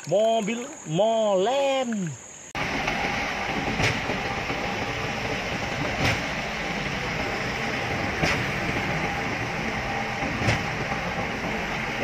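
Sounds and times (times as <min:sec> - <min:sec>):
concrete mixer truck running: 0:02.6 - 0:12.0.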